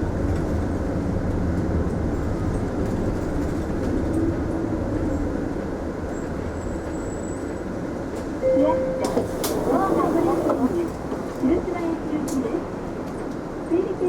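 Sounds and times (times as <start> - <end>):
bus engine drone: 7.0 - 13.2.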